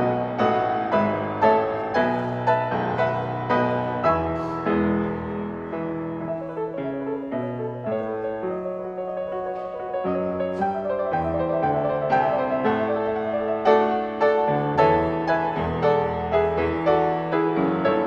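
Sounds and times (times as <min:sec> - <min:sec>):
solo piano playing: 0:00.0 - 0:18.0.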